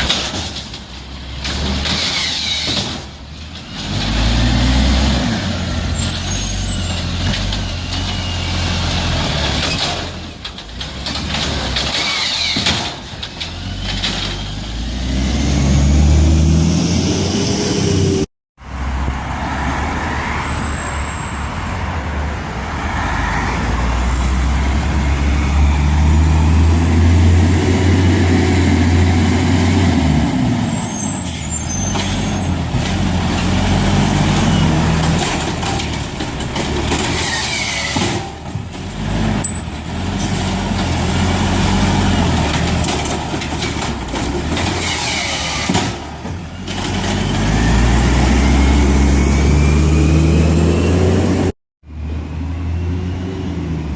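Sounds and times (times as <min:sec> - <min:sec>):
air brake hissing: 0:22.9 - 0:23.8.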